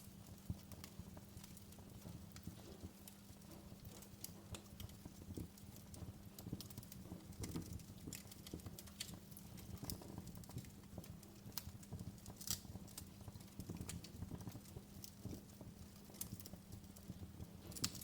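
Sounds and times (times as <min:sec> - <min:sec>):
fire popping and snapping: 0:00.0 - 0:18.0
low rumble of flames: 0:00.0 - 0:18.0.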